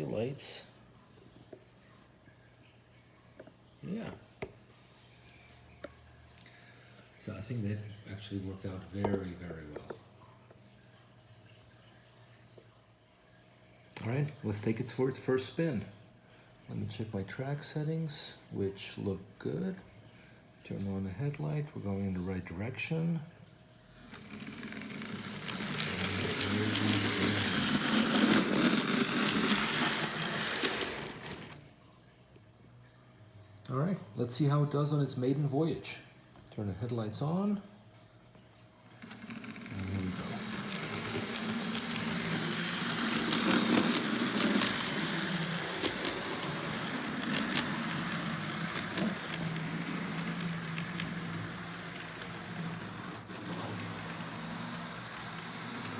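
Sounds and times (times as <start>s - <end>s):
model train motor buzzing: 24.0s - 31.6s, 39.0s - 55.9s
wheels clicking on rails: 24.1s - 31.6s, 39.0s - 55.9s.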